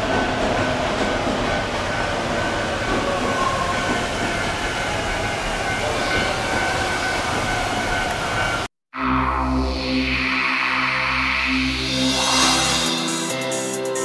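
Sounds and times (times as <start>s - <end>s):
electric train running on rails: 0.0s - 8.7s
background music: 9.5s - 14.0s.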